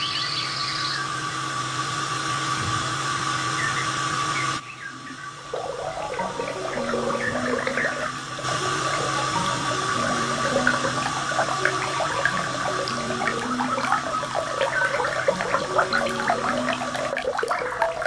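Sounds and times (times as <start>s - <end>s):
steady high hum: 0.0s - 18.0s
rushing water: 5.5s - 18.0s.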